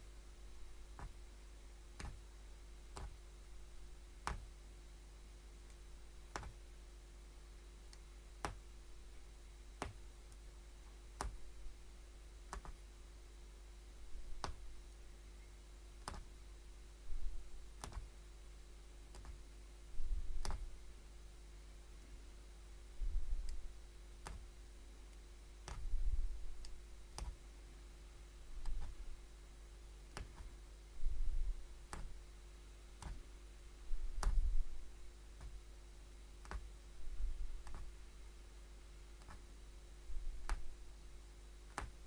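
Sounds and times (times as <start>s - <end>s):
punch needle clicking through fabric: 1.0s - 1.2s, 2.0s - 2.3s, 2.9s - 3.2s, 4.2s - 4.6s, 5.7s - 6.6s, 7.9s - 8.6s, 9.8s - 10.4s, 11.2s - 11.5s, 12.5s - 12.8s, 14.3s - 14.7s, 16.0s - 16.4s, 17.1s - 18.1s, 19.1s - 19.4s, 20.0s - 20.8s, 24.2s - 24.5s, 25.6s - 26.0s, 26.6s - 27.4s, 28.6s - 29.1s, 30.1s - 30.6s, 31.3s - 32.2s, 33.0s - 33.3s, 34.0s - 34.6s, 35.4s - 35.6s, 36.4s - 38.0s, 39.2s - 39.5s, 40.1s - 40.7s, 41.7s - 42.0s.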